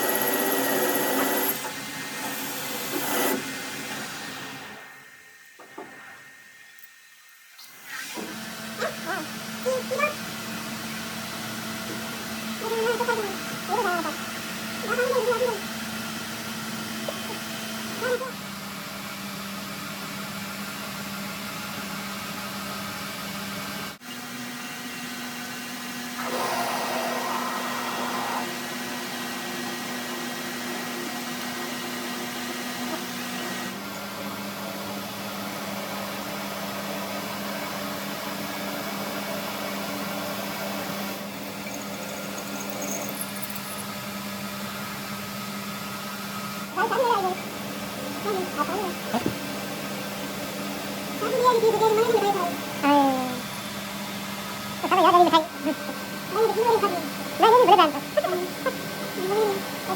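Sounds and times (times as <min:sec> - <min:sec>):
electric machine hum: 0:40.9 - 0:45.4.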